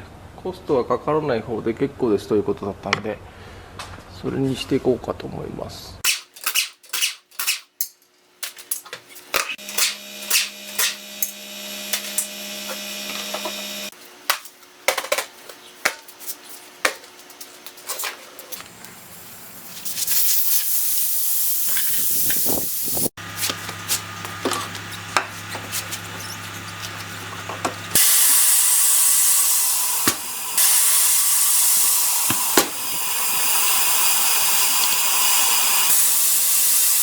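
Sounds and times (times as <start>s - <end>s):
tools clicking and knocking: 6.0s - 12.3s, 14.3s - 16.2s
steady hum: 8.4s - 20.1s
compressed air hissing: 9.3s - 14.0s, 19.0s - 24.3s, 24.9s - 37.0s.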